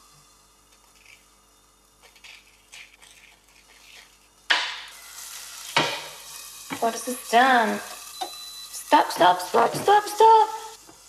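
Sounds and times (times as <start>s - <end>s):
egg sizzling in a pan: 0.0s - 11.0s.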